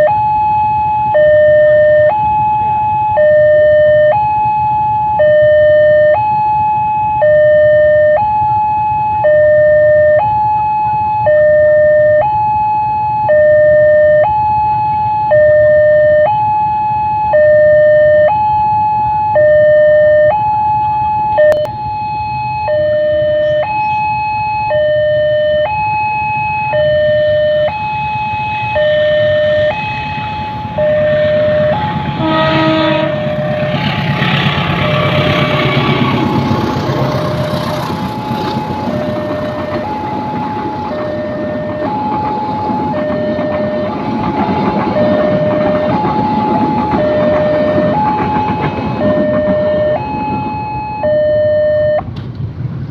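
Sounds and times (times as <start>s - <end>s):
two-tone level crossing alarm: 0.0s - 36.5s, 37.1s - 52.1s
train rumble: 26.7s - 52.9s.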